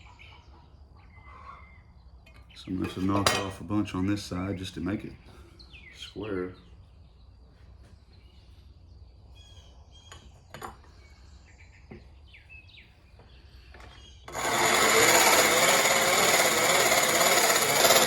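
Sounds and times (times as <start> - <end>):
bird chirps: 5.4 - 14.3
grinding wheel grinding steel: 13.7 - 18.0.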